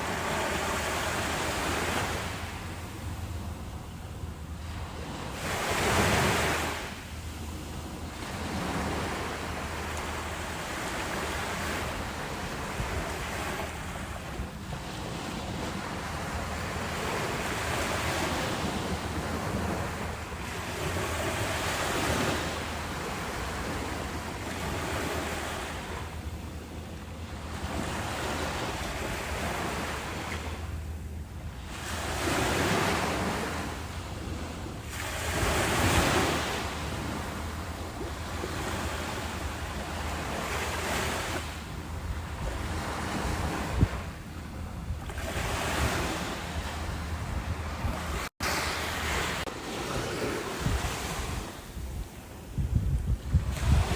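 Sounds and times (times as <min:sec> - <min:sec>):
ocean waves breaking: 0:00.0 - 0:53.9
wind on microphone: 0:31.8 - 0:53.9.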